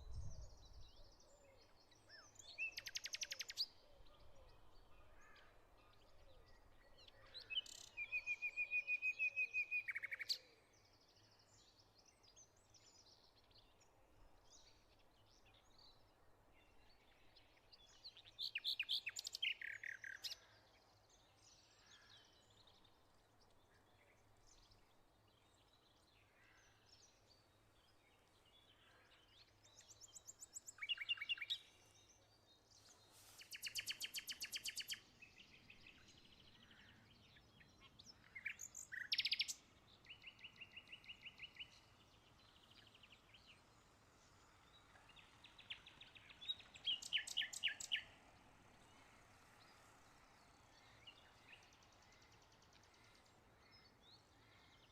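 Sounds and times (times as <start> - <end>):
songbirds chirping and trilling: 0.0 - 54.9.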